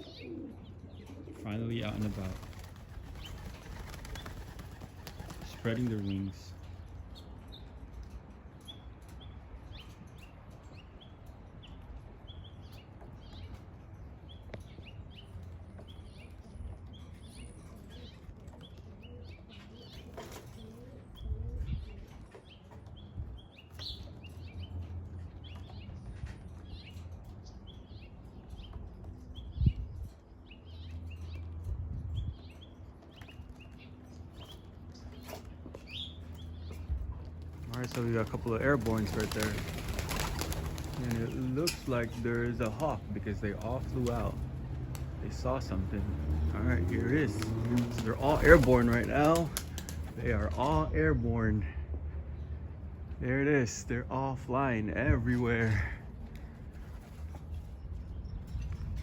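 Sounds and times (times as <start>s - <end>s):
birds chirping: 0.0s - 59.0s
pigeon wings clattering: 1.3s - 6.3s, 37.4s - 46.0s, 46.7s - 50.8s.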